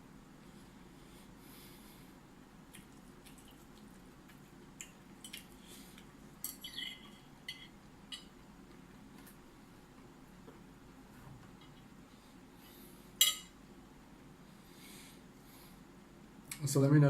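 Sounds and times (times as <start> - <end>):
faint low hum: 0.0 - 17.0
crisp eating crunches: 2.6 - 6.8.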